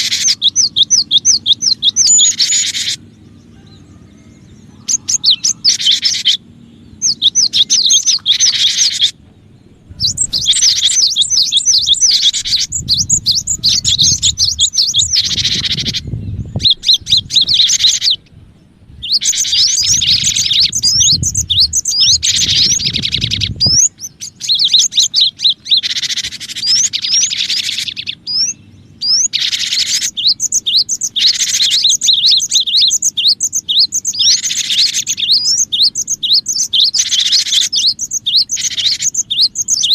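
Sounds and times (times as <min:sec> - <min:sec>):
bird fast high chirps: 0:00.0 - 0:18.3, 0:18.9 - 0:39.9
low rumble: 0:09.2 - 0:25.8.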